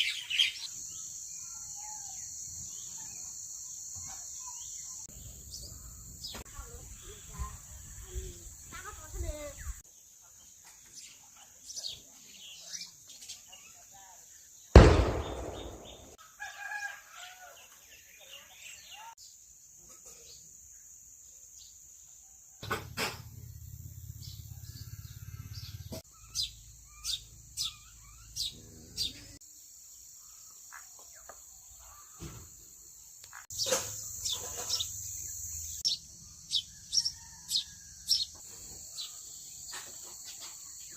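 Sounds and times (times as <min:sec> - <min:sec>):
insects droning: 0:00.0 - 0:40.9
small birds calling faintly: 0:23.4 - 0:40.9.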